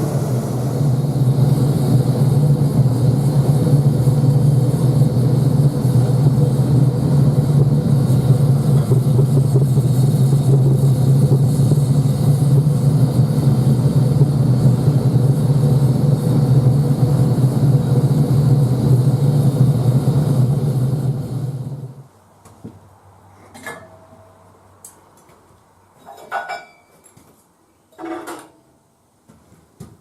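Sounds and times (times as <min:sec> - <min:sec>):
oil-fired furnace rumbling: 0:00.0 - 0:22.1.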